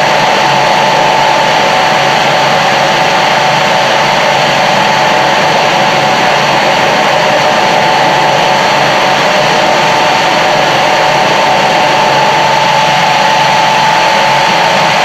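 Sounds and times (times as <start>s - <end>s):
centrifugal fan whining: 0.0s - 15.0s.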